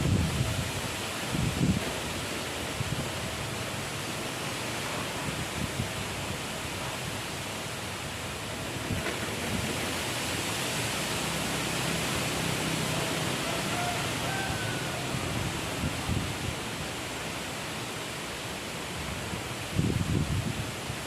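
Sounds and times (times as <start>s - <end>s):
strong wind blowing: 0.0s - 3.6s, 8.8s - 17.6s, 18.9s - 21.0s.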